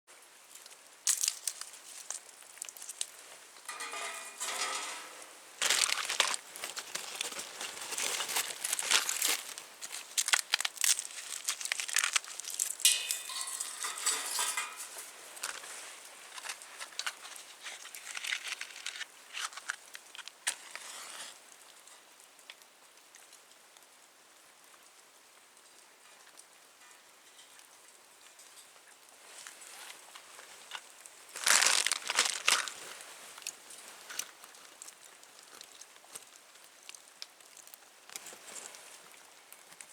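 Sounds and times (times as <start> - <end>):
wood fire crackling: 0.4 - 22.6, 26.4 - 39.9.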